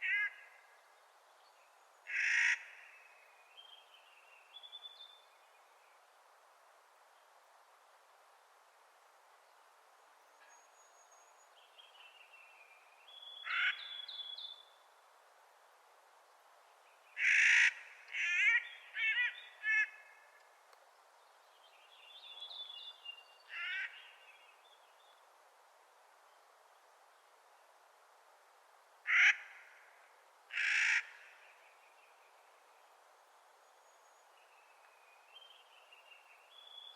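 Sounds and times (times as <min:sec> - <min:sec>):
bird harsh grating calls: 0:02.1 - 0:02.7, 0:13.4 - 0:14.0, 0:30.6 - 0:31.2.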